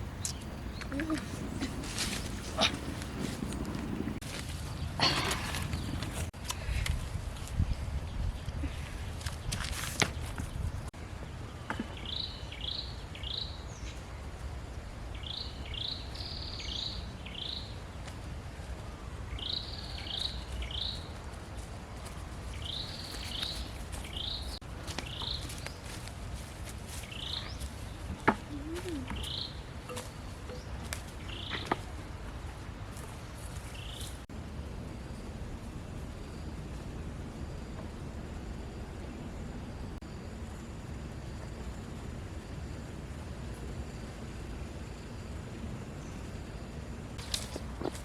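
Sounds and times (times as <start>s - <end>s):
steady low rumble: 0.0s - 9.2s
bird chirping: 28.6s - 31.8s.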